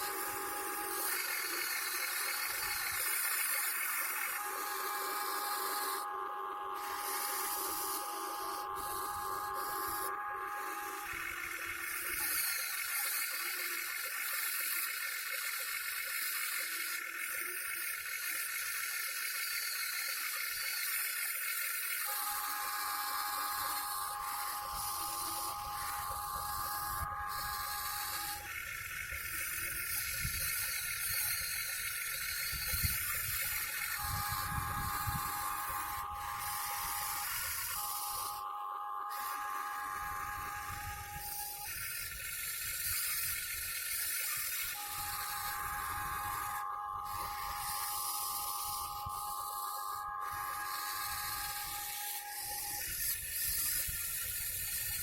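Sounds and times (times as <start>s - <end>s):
electric motors whining: 0.0s - 55.0s
hiss: 39.1s - 55.0s.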